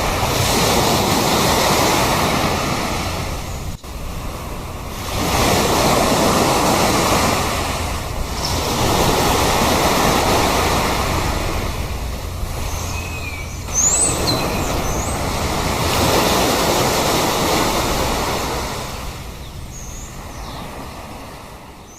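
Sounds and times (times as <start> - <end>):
sea waves washing onto shore: 0.0 - 21.9
high bird calls: 12.4 - 15.8, 19.4 - 20.7.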